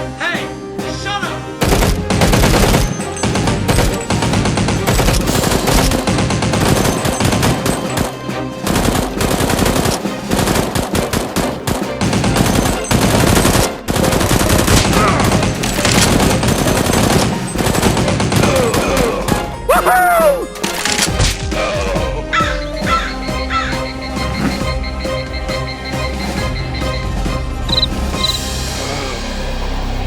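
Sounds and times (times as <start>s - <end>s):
rapid automatic gunfire: 1.6s - 19.4s.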